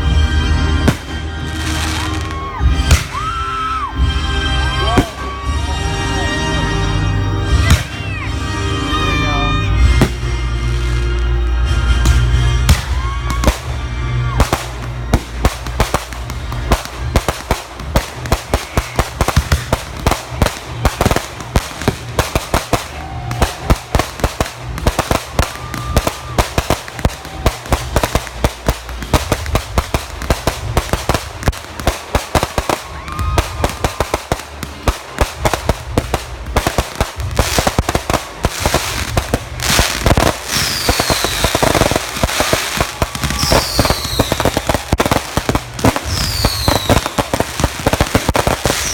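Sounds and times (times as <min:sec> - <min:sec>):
firework whistle falling in pitch: 0:00.0 - 0:06.9, 0:07.5 - 0:15.3, 0:38.8 - 0:45.2
fireworks bangs and crackling: 0:00.0 - 0:48.9.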